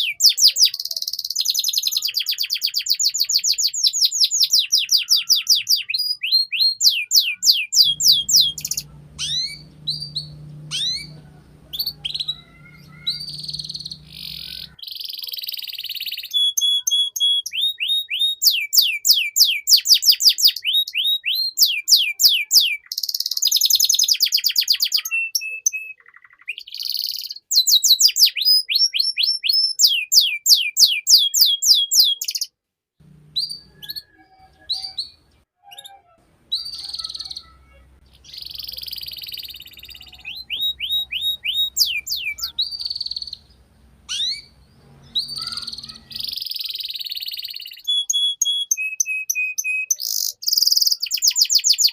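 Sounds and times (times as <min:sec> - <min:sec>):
canary singing fast trills: 0:00.0 - 0:51.9.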